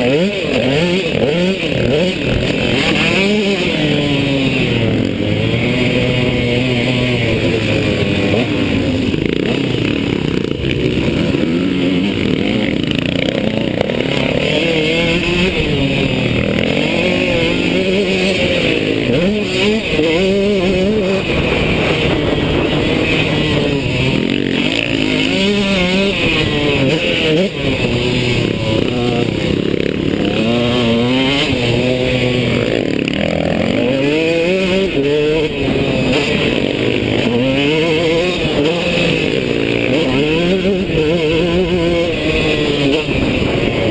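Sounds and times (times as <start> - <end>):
motocross bike engine revving: 0.0 - 43.9.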